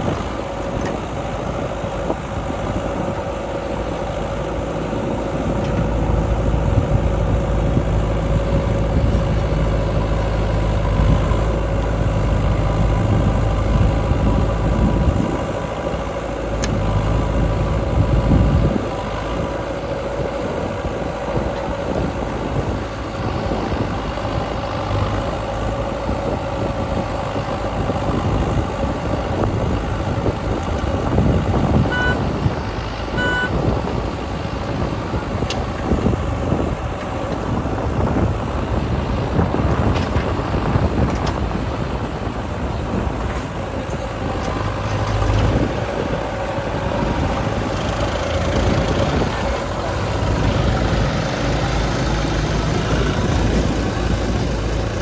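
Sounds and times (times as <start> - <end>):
diesel engine running: 0.0 - 55.0
short beeps: 31.9 - 32.2, 33.2 - 33.6.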